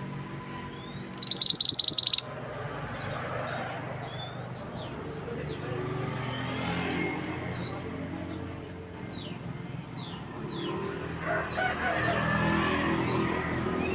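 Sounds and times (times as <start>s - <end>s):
bird trilling: 1.1s - 2.3s
faint short chirps: 1.2s - 2.3s.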